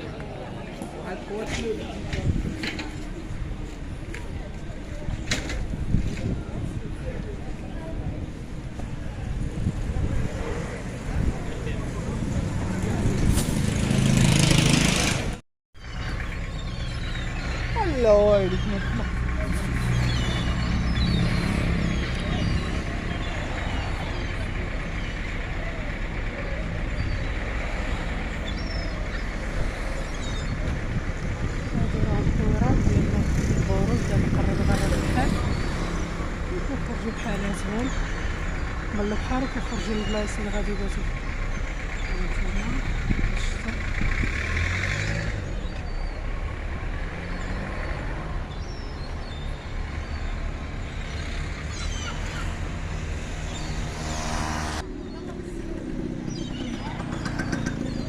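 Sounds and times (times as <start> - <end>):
wind: 0.0 - 58.0
boat engine droning: 13.9 - 58.0.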